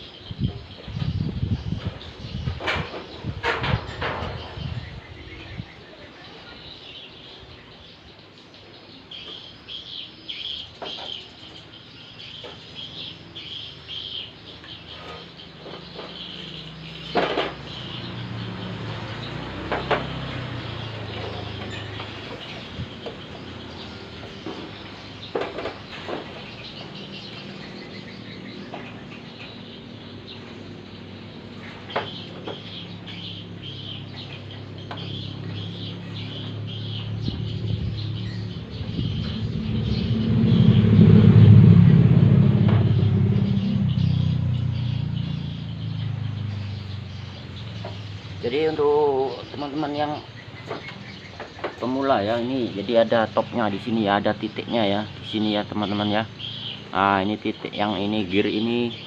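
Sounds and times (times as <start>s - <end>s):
bird chirping: 0.0s - 59.0s
low engine hum: 12.0s - 59.0s.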